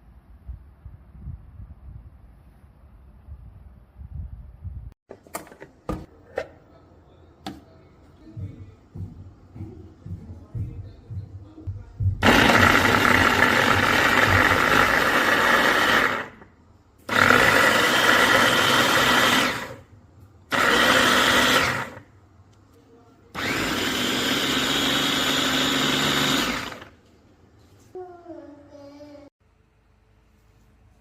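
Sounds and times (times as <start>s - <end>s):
electric chopper motor and blades: 12.2s - 16.4s, 17.1s - 19.8s, 23.4s - 26.9s.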